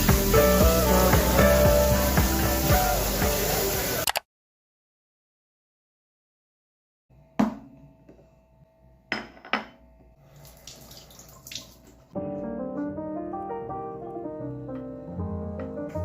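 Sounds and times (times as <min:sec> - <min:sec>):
water running at a sink: 0:00.0 - 0:04.0, 0:10.3 - 0:12.0.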